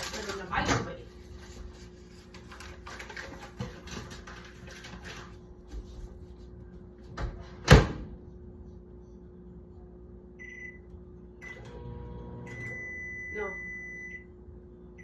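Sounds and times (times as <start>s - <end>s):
rustling and handling noises: 0.0s - 6.7s.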